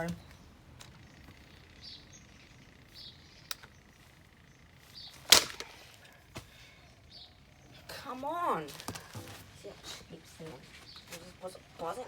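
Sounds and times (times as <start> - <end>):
sharp click: 5.3 - 5.7.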